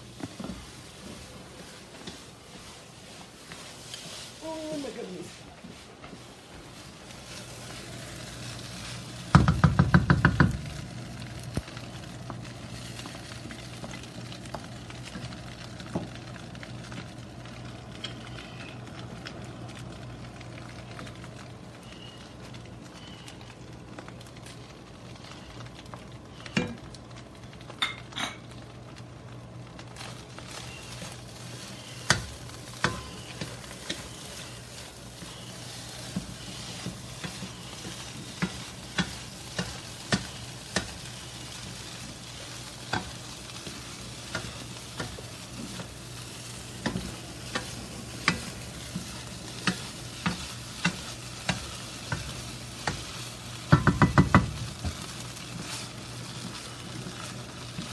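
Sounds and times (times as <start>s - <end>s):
food sizzling in a wok: 0.0s - 57.9s
utensil knocking against pan: 9.3s - 10.6s, 53.7s - 54.5s.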